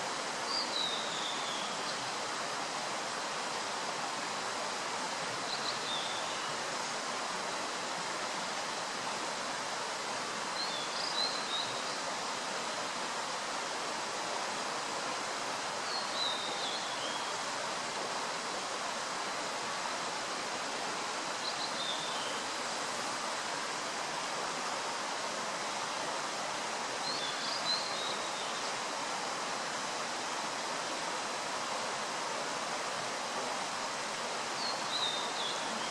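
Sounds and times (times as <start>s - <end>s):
running water rushing: 0.0s - 35.9s.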